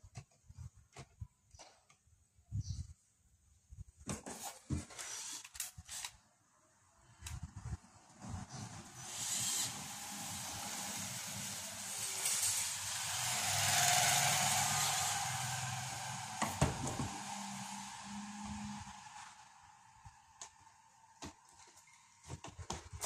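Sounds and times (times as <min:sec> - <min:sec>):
power screwdriver running: 0:09.0 - 0:13.8.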